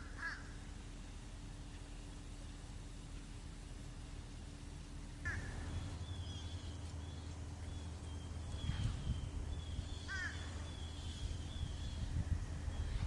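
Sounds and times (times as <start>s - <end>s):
low steady rumble: 0.0s - 13.0s
faint high bird chirps: 5.3s - 13.0s
bird falling call: 7.7s - 11.7s.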